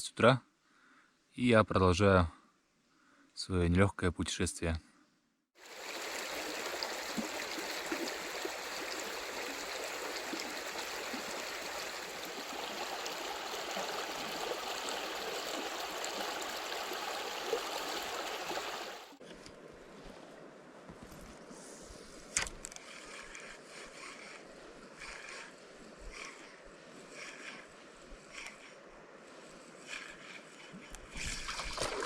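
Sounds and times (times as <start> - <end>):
forest stream flowing over stones: 5.6 - 19.2, 31.2 - 32.0.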